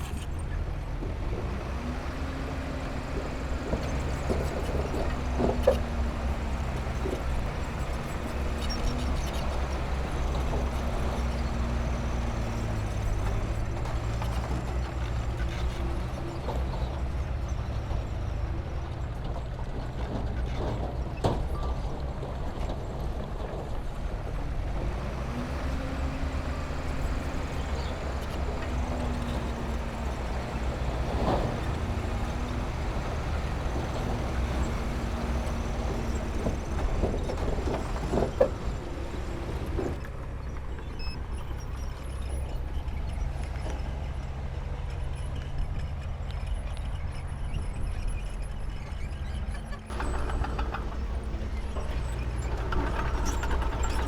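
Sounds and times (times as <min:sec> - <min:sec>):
heavy diesel machinery running: 0:00.0 - 0:54.0
knocks and clanks of rock or metal: 0:49.9 - 0:54.0.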